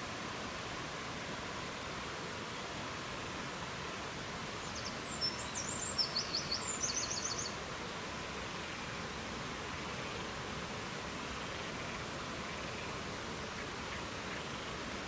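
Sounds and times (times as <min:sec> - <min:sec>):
songbird singing: 0:04.6 - 0:07.6.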